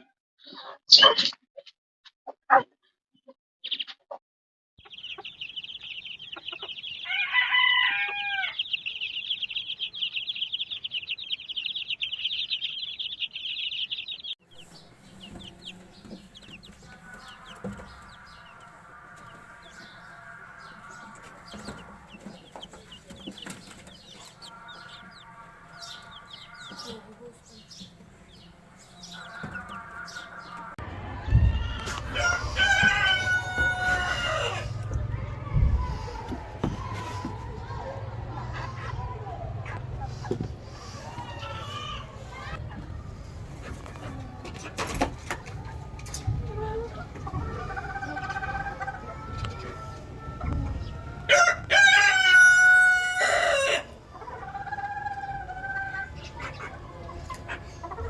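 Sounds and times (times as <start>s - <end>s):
repeated bird calls: 4.8s - 43.1s
caged birds chirping: 4.8s - 58.0s.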